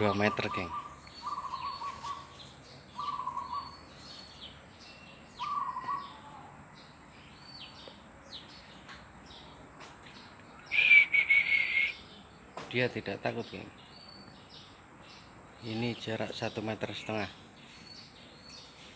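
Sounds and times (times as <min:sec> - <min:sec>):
bird warbling calls: 0:00.0 - 0:06.5, 0:10.2 - 0:12.2
small birds chirping: 0:00.0 - 0:18.9.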